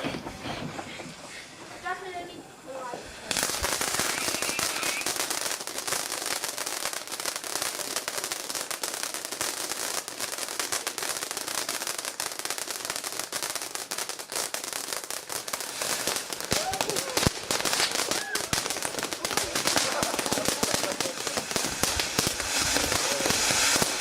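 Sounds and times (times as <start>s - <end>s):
firework crackling and hissing: 0.0s - 24.0s.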